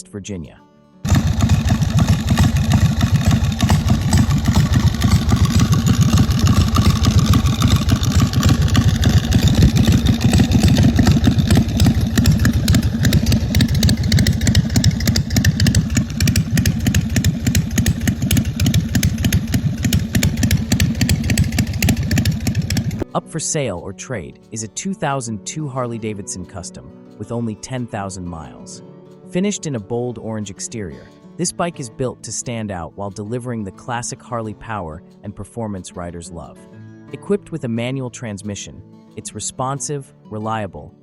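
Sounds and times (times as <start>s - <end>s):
motorcycle engine running: 1.1s - 23.1s.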